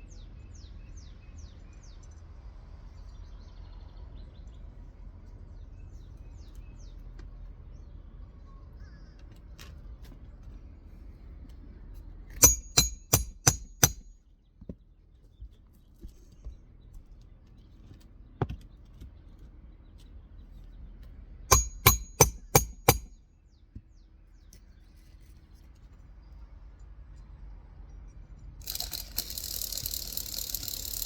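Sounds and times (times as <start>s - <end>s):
hammer striking metal: 12.4s - 14.1s, 21.5s - 23.2s.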